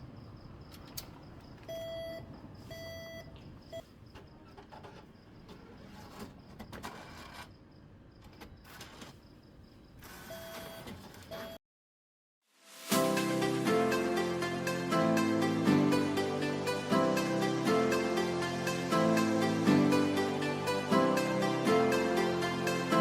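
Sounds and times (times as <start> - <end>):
faint background hum: 0.0 - 11.5
short electronic beeps: 1.7 - 3.8.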